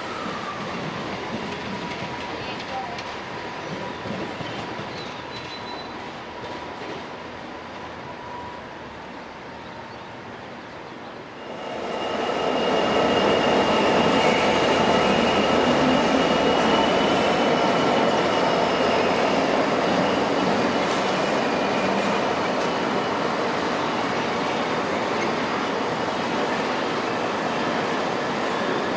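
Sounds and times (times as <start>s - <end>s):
train rumble: 0.0s - 28.9s.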